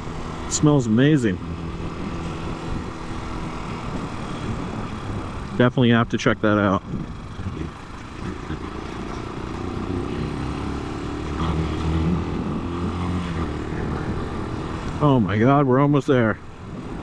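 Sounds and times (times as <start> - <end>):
motorcycle engine running: 0.0 - 15.6.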